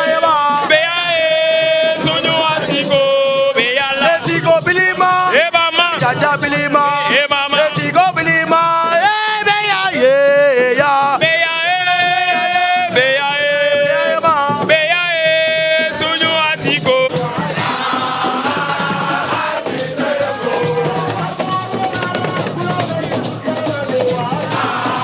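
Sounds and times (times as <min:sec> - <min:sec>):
musical backing: 0:00.0 - 0:25.0
voices singing: 0:00.0 - 0:25.0.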